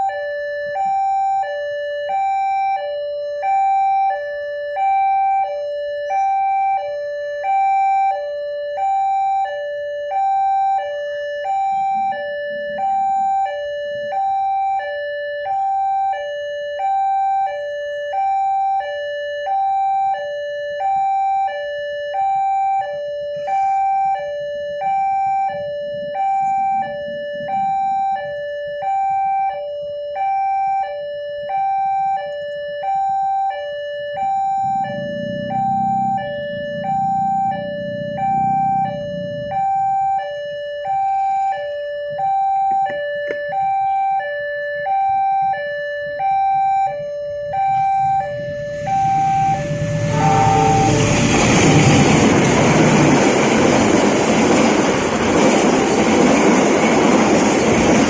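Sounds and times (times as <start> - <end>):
level crossing two-tone alarm: 0.0 - 58.0
low rumble: 34.2 - 40.5, 47.0 - 56.6.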